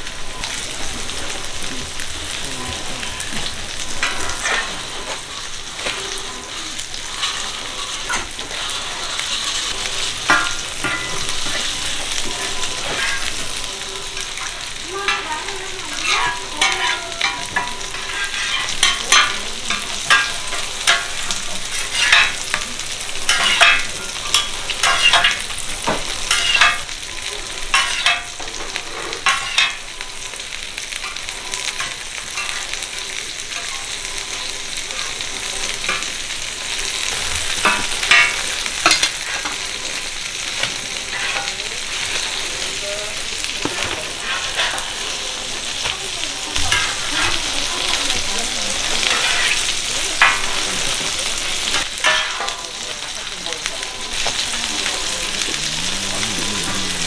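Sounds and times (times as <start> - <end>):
pancakes sizzling in oil: 0.0 - 57.0
metal spatulas scraping griddle: 2.8 - 15.3, 15.9 - 30.4, 36.8 - 40.0, 40.6 - 42.4, 43.6 - 45.2, 49.0 - 50.7, 51.6 - 52.6.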